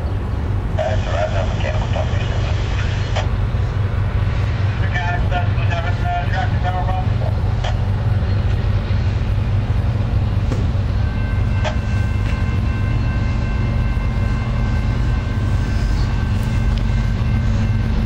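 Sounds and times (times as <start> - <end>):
freight train rumbling past: 0.0 - 18.0
faint high ringing tone: 10.9 - 18.0.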